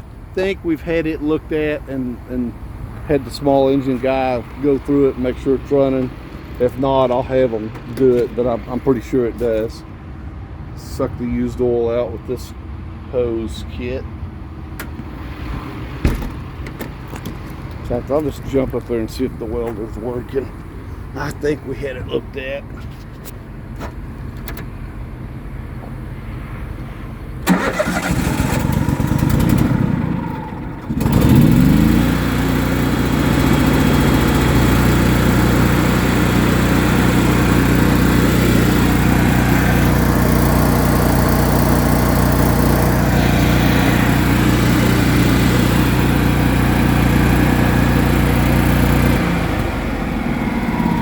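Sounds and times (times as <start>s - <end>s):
small gas engine cranking and running: 27.5s - 51.0s.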